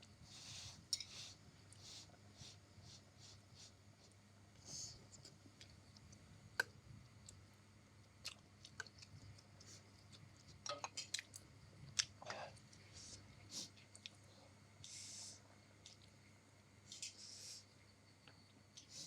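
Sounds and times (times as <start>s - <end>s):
soft hissy bursts: 0.2s - 5.1s, 14.8s - 15.5s
chewing: 8.0s - 12.9s, 13.5s - 14.3s.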